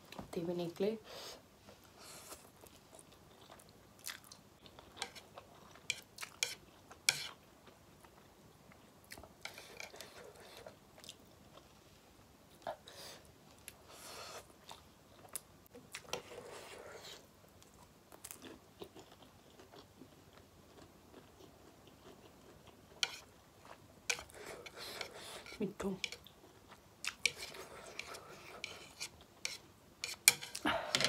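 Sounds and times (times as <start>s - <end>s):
person chewing and smacking: 2.6s - 7.0s, 26.2s - 30.6s.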